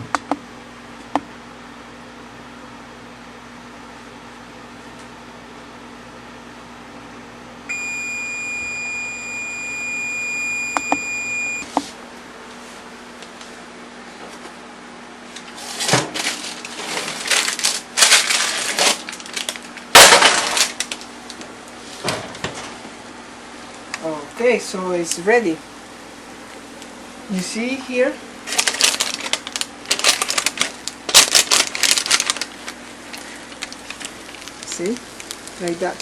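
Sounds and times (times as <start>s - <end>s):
oven fan hum: 0.0s - 36.0s
oven timer beeping: 7.7s - 11.8s.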